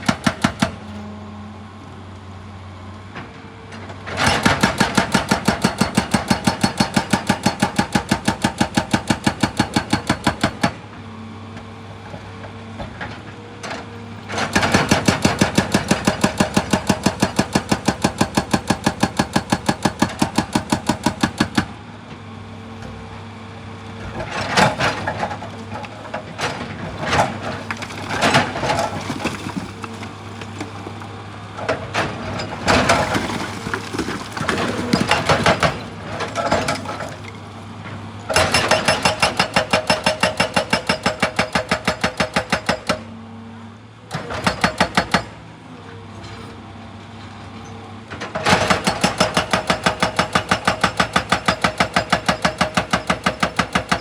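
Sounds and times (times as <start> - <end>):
hydraulic breaker hammer pounding: 0.0 - 1.0, 4.1 - 10.9, 14.2 - 21.8, 24.0 - 43.1, 44.2 - 45.4, 48.3 - 54.0
excavator engine hum: 0.0 - 54.0.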